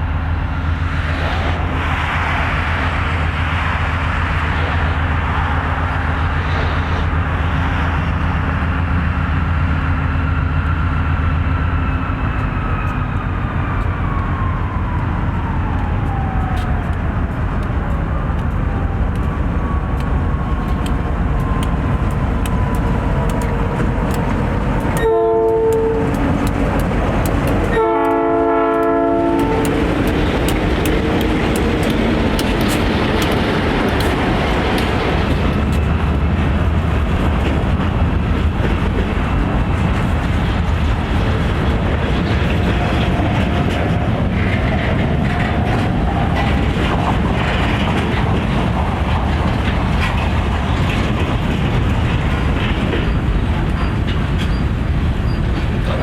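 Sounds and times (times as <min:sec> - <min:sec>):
locomotive engine drone: 0:00.0 - 0:56.0
wheels clicking over rail joints: 0:15.6 - 0:56.0
locomotive horn blasts: 0:25.0 - 0:26.2, 0:27.7 - 0:29.8.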